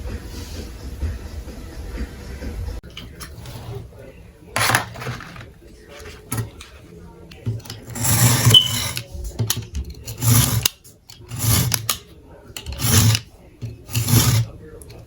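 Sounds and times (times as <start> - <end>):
rasping scraping strokes by hand: 7.8 - 9.0, 10.0 - 12.0, 12.6 - 14.6.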